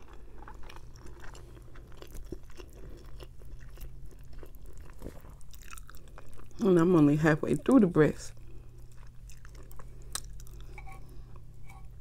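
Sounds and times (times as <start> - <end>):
chewing with wet mouth clicks: 0.0 - 6.6, 8.8 - 11.5.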